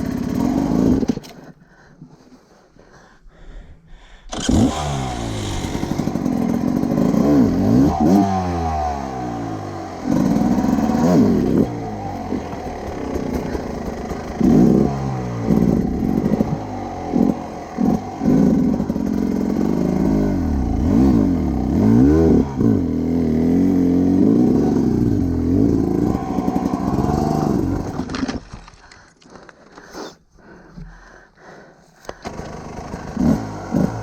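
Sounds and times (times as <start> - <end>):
motorcycle engine revving: 0.0 - 1.2, 4.3 - 28.2, 32.2 - 34.0
engine clatter: 4.3 - 8.2, 9.3 - 21.9, 32.0 - 34.0.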